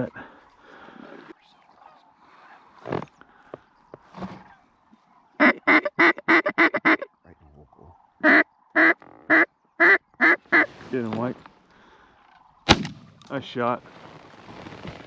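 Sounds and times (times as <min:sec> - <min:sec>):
duck call quacks: 0:05.4 - 0:07.1, 0:08.2 - 0:10.7.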